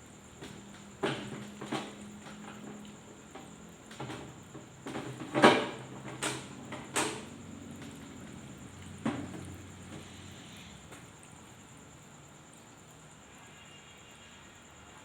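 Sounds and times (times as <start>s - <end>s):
objects knocking and clattering: 1.0s - 8.0s, 9.0s - 10.1s.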